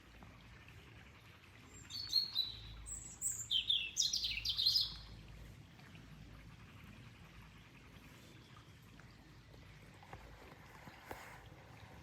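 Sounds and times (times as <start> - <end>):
songbird singing: 1.7 - 5.2.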